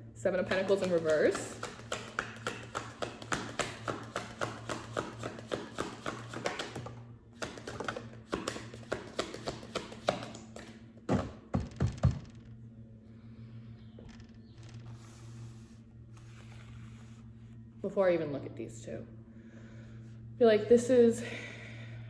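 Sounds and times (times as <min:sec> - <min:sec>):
cards being shuffled: 0:00.5 - 0:10.8, 0:14.7 - 0:17.4.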